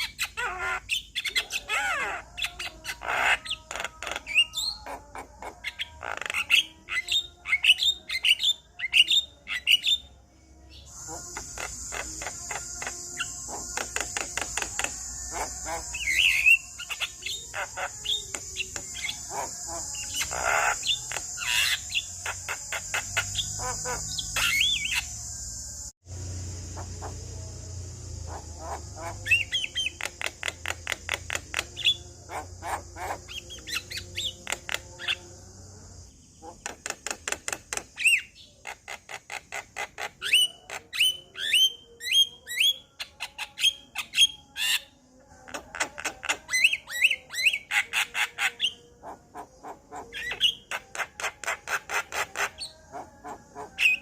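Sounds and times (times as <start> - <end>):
high insect trill: 0.0 - 54.0
myna chattering and whistling: 10.8 - 25.2, 28.2 - 35.3.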